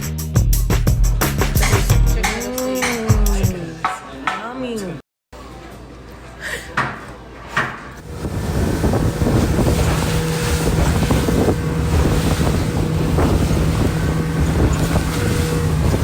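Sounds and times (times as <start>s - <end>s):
engine hum: 8.0s - 16.0s
wind buffeting microphone: 8.0s - 16.0s.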